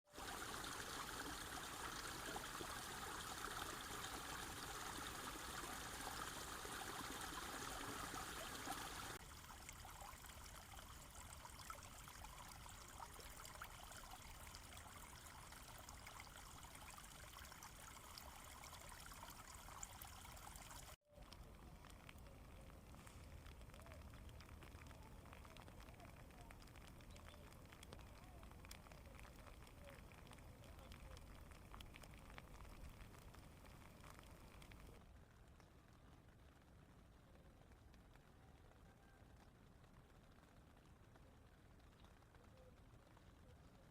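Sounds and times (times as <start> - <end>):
running water trickling: 0.1 - 35.0.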